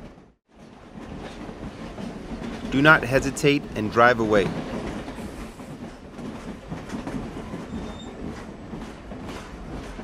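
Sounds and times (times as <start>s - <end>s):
train rumbling on track: 0.0s - 10.0s.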